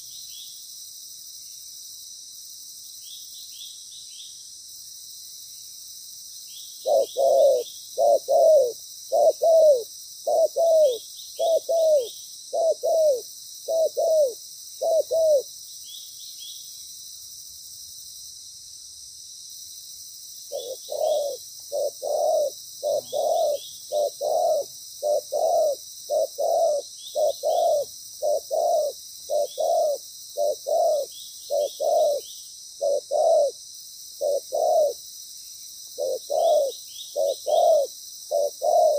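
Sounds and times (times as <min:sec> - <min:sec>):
high-pitched insect drone: 0:00.0 - 0:38.9
dove cooing: 0:06.8 - 0:15.5, 0:20.5 - 0:33.6, 0:34.2 - 0:35.0, 0:36.0 - 0:38.9.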